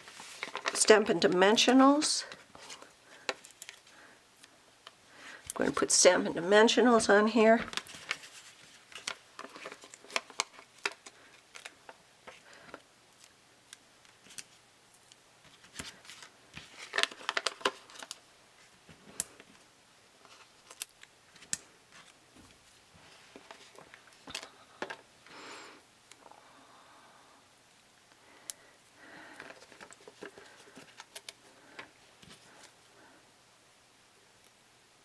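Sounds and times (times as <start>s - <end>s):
paper rustle: 0.0s - 0.9s, 7.5s - 12.8s, 15.4s - 19.6s
card stock clicks and crinkles: 0.0s - 1.0s, 7.6s - 19.6s, 20.2s - 22.6s, 28.4s - 32.8s.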